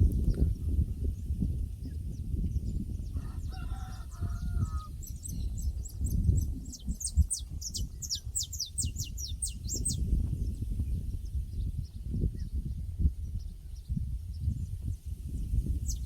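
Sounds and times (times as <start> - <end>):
songbird chirping: 2.2 - 10.1
distant rooster crowing: 3.1 - 5.0.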